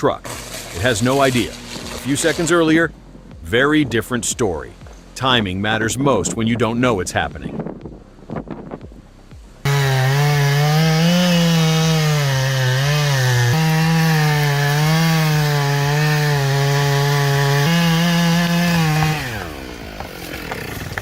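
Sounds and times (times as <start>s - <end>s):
chainsaw cutting wood: 0.1s - 2.8s, 9.6s - 21.0s.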